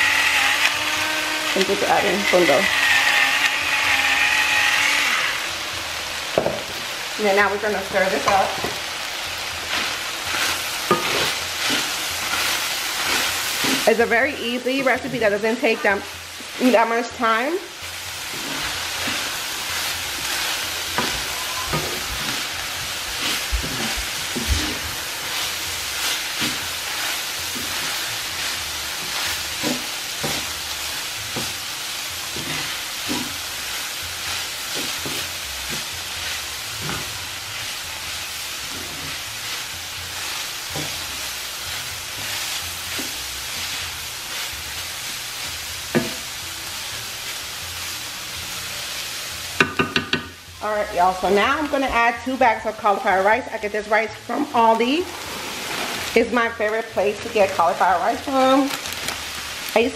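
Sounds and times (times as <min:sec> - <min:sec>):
meat sizzling in a skillet: 0:00.0 - 0:59.9
wooden spatula scraping pan: 0:09.7 - 0:17.4, 0:18.2 - 0:31.6, 0:32.3 - 0:33.6, 0:34.2 - 0:44.6, 0:54.8 - 0:58.6.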